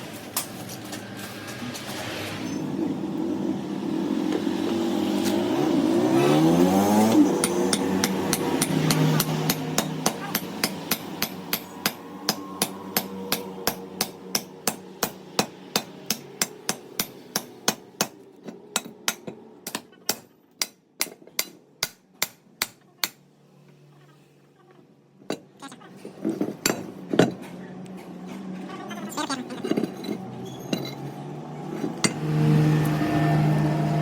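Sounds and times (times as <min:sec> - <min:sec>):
hammer striking metal: 0:07.0 - 0:23.2.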